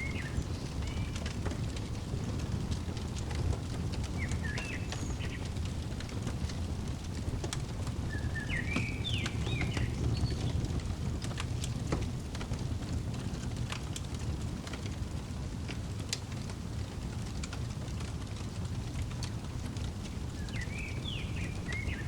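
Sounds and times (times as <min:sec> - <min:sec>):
bird chirping: 0:00.0 - 0:02.4, 0:04.0 - 0:06.6, 0:08.0 - 0:10.7, 0:20.3 - 0:22.0
fireplace crackling: 0:00.0 - 0:22.0.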